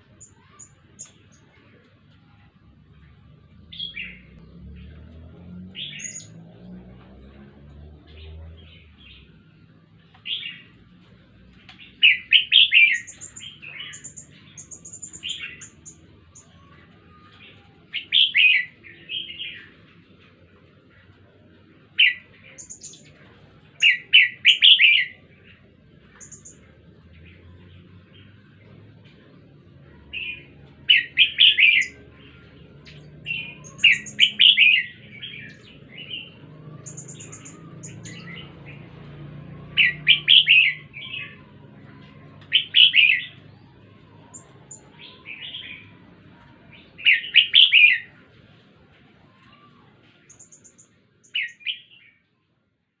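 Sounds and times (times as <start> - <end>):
faint high chirps: 0.0 - 6.8, 7.6 - 19.8, 26.0 - 48.2, 49.0 - 52.4
bulbul warbling song: 29.9 - 45.8.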